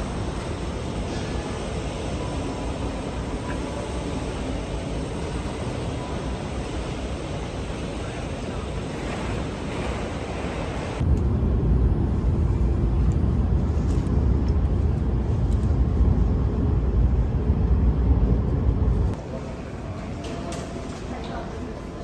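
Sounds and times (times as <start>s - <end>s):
station forecourt hiss: 0.0s - 11.0s
train rumble inside carriage: 0.0s - 22.0s.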